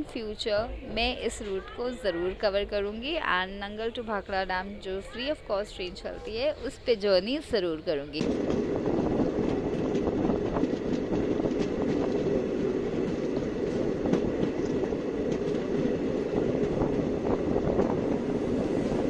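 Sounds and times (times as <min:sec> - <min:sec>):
train wheels rumbling on rail: 0:08.0 - 0:19.0.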